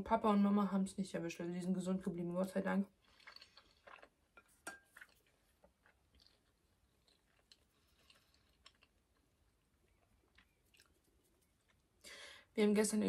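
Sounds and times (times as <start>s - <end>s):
faint chewing: 2.4s - 12.0s.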